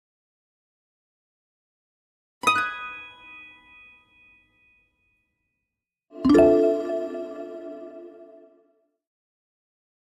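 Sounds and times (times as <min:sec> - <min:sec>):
bell-like chime ringing: 0:06.2 - 0:08.4.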